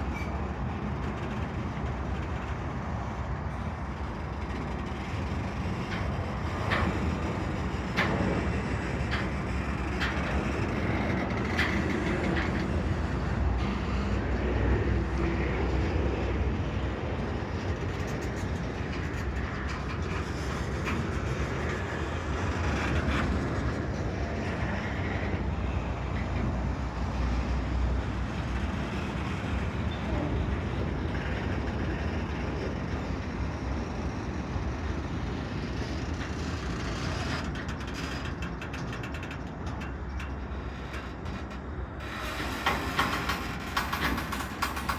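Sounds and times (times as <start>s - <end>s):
freight train rumbling past: 0.0s - 44.9s
train wheels clicking: 0.0s - 44.9s.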